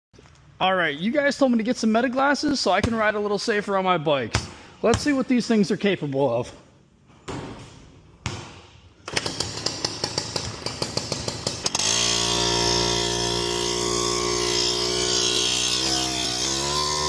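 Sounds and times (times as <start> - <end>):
moped engine starting and running: 9.1 - 13.4.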